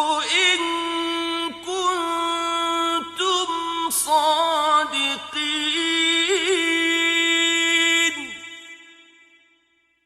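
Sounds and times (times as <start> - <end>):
man chanting recitation: 0.0 - 8.7.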